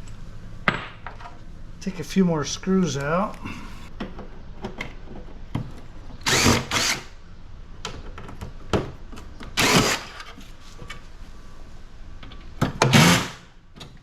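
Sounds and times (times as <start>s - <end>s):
cordless drill running: 6.2s - 7.2s, 12.9s - 13.4s.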